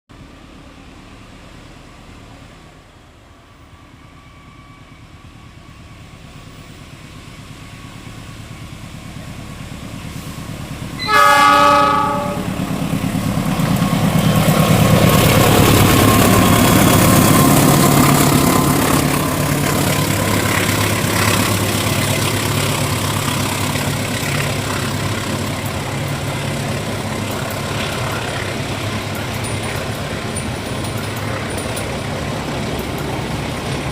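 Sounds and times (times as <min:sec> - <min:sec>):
train rumbling on rails: 0:00.1 - 0:33.9
locomotive horn blast: 0:11.0 - 0:12.7.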